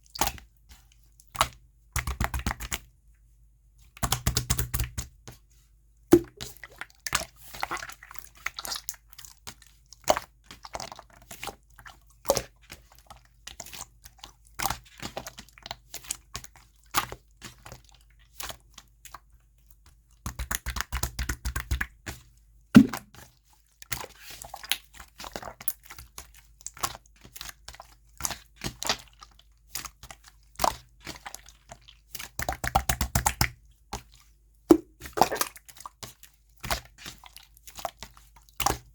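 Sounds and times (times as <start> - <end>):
slime squeezed by hand: 22.8 - 23.0, 34.7 - 35.6.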